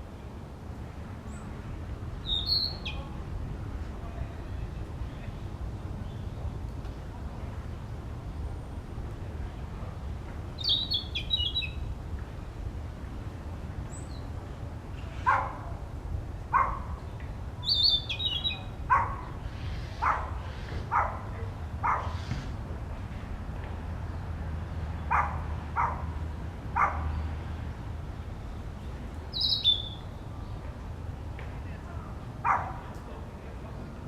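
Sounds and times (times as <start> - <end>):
bird singing high whistles: 2.3 - 3.0, 17.6 - 18.6, 29.4 - 30.1.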